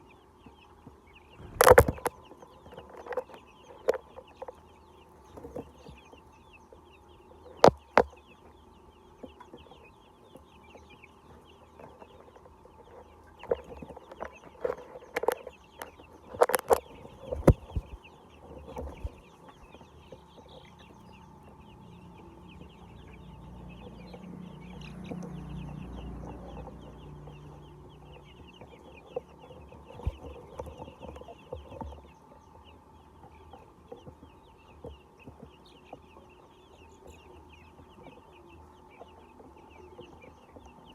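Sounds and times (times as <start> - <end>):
chickens clucking: 0.0 - 40.9
low rumble: 1.3 - 2.2.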